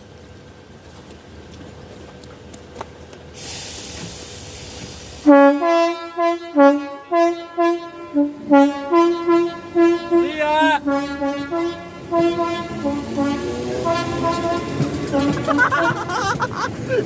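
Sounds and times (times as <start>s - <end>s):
air hiss: 3.4s - 5.4s
train two-tone horn blasts: 5.2s - 16.2s.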